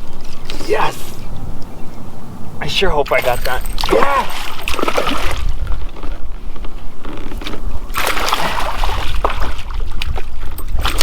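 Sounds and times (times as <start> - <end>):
steady low rumble: 0.7 - 3.9
water splashing: 3.0 - 6.6, 7.5 - 11.0.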